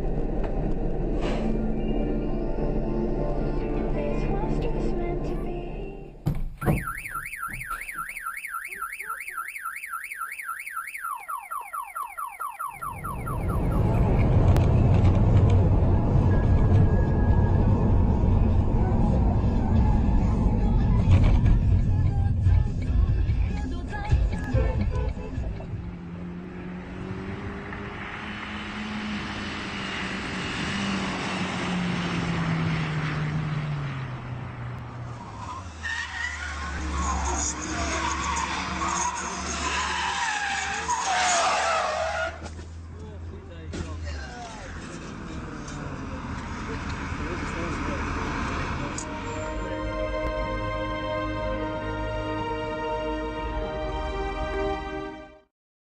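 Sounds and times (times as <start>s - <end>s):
electronic alarm warble: 6.6s - 14.3s.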